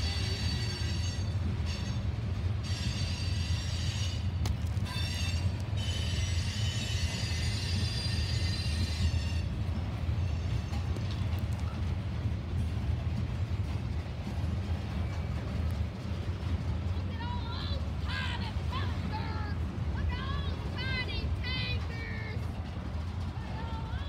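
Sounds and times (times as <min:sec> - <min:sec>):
high metallic wheel squeal: 0:00.0 - 0:10.9
freight train rumbling past: 0:00.0 - 0:24.0.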